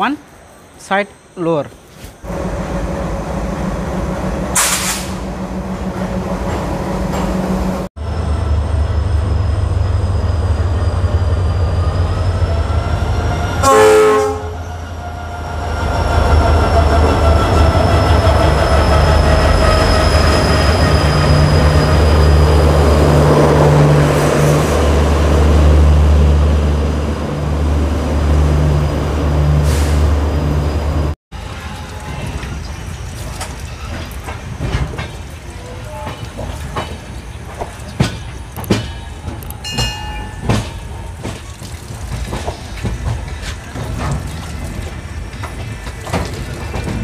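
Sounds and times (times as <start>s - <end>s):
locomotive rumbling: 1.2s - 47.0s
train horn blast: 13.6s - 15.2s
coaches rolling on rails: 30.6s - 47.0s.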